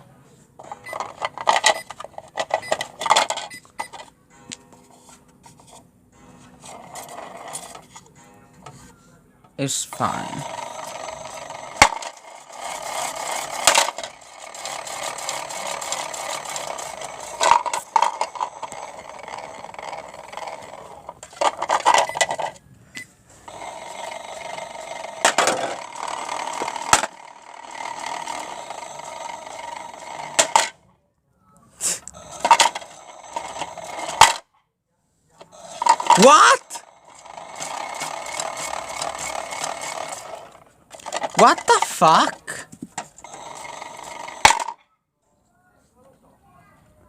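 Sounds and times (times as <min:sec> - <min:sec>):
toy washing machine motor hum: 0:00.6 - 0:04.1, 0:06.6 - 0:08.0, 0:09.6 - 0:22.6, 0:23.4 - 0:30.8, 0:32.1 - 0:34.4, 0:35.4 - 0:44.8.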